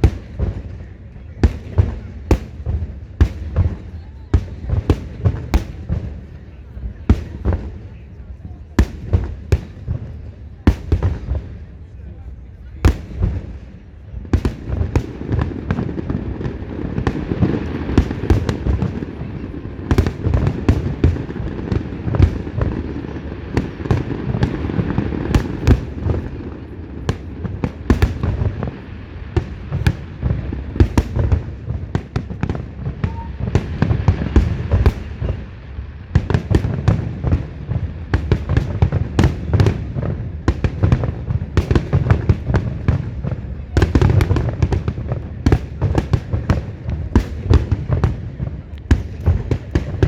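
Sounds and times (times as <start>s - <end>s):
fireworks sharp cracks: 0.0s - 6.3s, 14.3s - 50.0s
fireworks booming: 0.0s - 11.9s, 12.7s - 50.0s.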